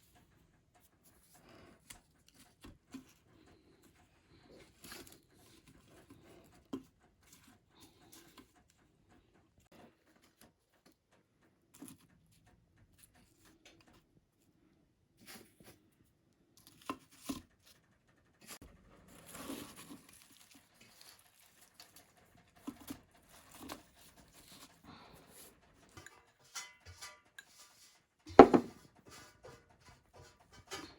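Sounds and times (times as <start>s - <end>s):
rustling: 18.4s - 25.6s.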